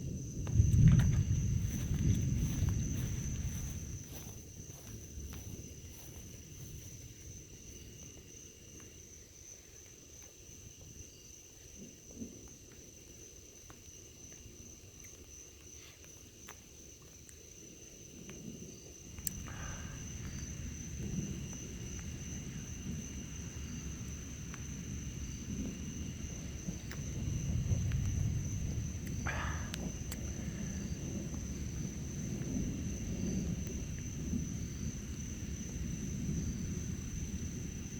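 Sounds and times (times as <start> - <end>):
low rumble: 0.0 - 6.9, 19.2 - 37.9
night insects chirping: 0.0 - 37.9.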